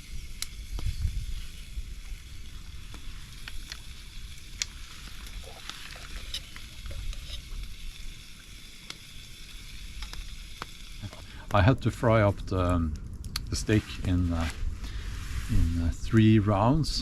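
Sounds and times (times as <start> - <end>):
steak sizzling in a pan: 0.0 - 11.4.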